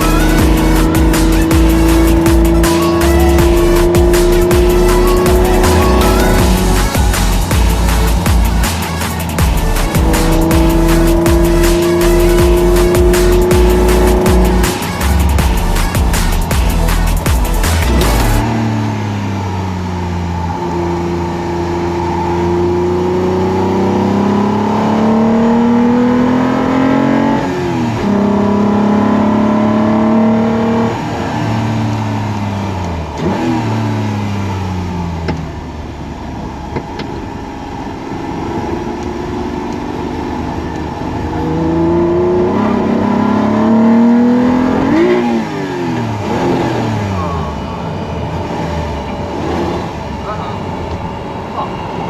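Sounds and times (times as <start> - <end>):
car engine revving at track speed: 0.0 - 52.0.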